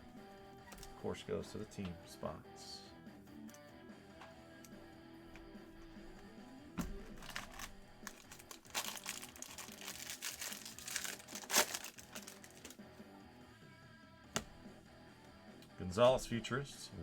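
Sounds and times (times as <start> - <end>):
quiet background music: 0.0 - 17.0
card pack wrappers crinkling: 6.8 - 12.8.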